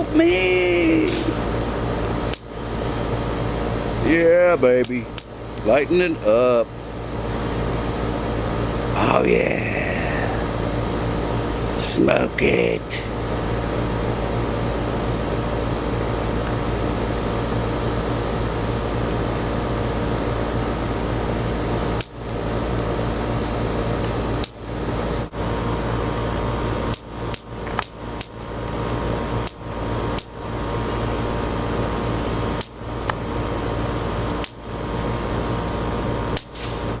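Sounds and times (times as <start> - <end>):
steady background hum: 0.0 - 37.0
electric fly swatter cracks: 0.8 - 1.4, 2.0 - 2.6, 4.8 - 5.4, 24.4 - 24.7, 26.2 - 30.4, 32.6 - 33.2, 34.4 - 34.7, 36.3 - 37.0.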